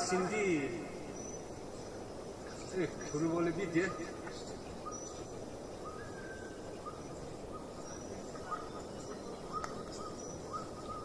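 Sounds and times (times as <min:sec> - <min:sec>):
steady hiss: 0:00.0 - 0:11.0
thin bird calls: 0:00.0 - 0:11.0.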